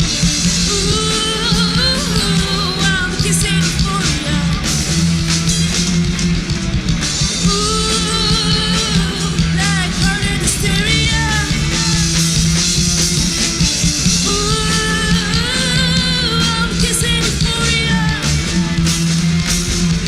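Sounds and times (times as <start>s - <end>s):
wavering lead vocal line: 0.0s - 5.0s, 7.4s - 12.8s, 14.0s - 19.4s
bass: 0.0s - 20.0s
drums: 0.0s - 20.0s
electric guitars: 0.0s - 20.0s.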